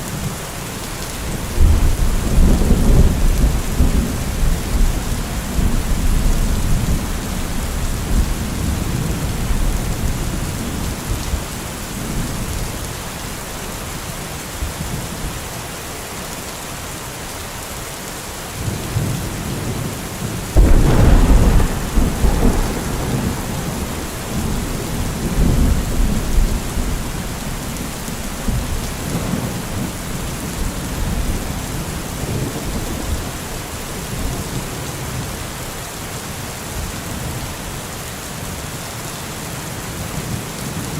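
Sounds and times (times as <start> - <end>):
steady rain: 0.0 - 40.9
rolling thunder: 20.5 - 33.4
loud thunderclap: 20.6 - 27.4.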